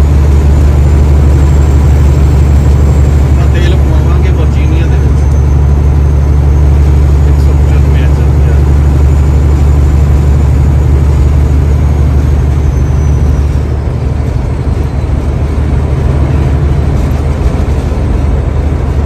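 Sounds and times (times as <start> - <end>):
diesel truck engine droning: 0.0 - 19.0.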